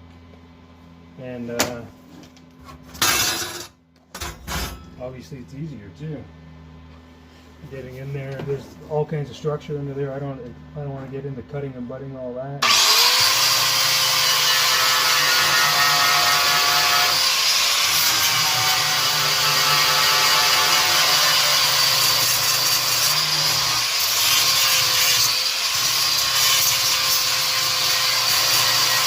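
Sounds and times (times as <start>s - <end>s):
angle grinder on sheet metal: 12.6s - 29.0s.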